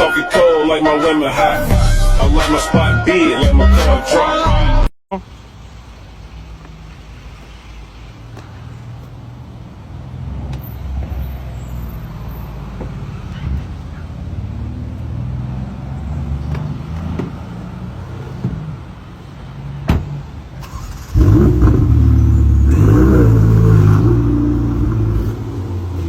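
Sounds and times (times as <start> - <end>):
car engine rumbling and revving: 12.6 - 26.0.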